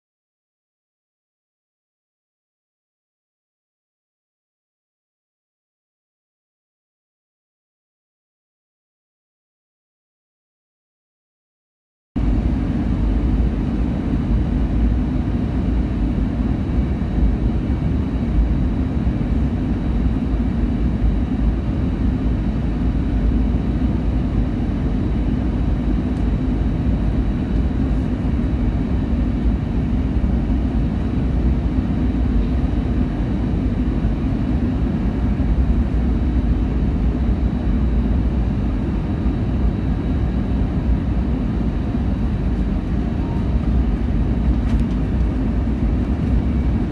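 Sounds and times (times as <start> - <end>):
aircraft cabin engine rumble: 12.2 - 46.9
faint high whine: 12.2 - 46.9.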